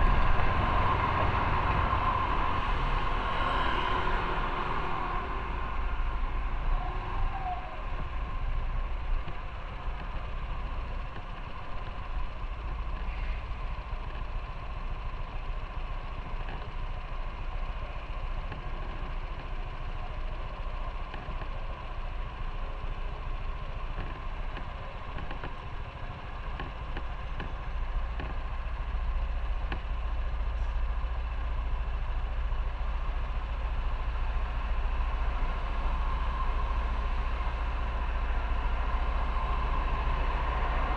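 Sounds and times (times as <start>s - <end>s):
wind and road noise: 0.0s - 40.9s
motorcycle engine running: 4.0s - 40.9s.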